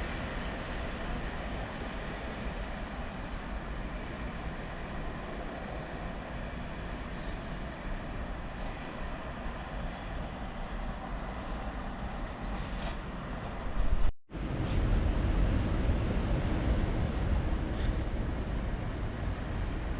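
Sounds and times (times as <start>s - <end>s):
train wheels rumbling: 14.4s - 19.9s.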